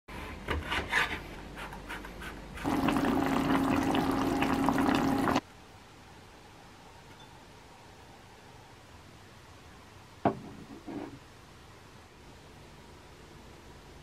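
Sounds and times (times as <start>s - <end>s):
steady hum: 2.6s - 6.9s.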